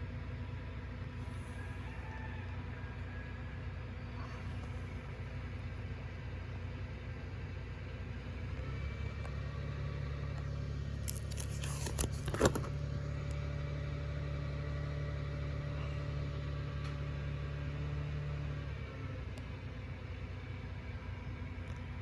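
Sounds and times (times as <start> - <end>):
steady low hum: 0.0 - 17.6.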